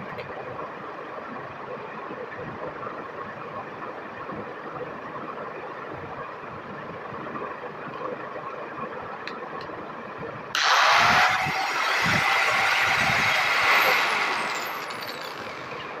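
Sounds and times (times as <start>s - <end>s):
angle grinder running: 10.6s - 16.0s.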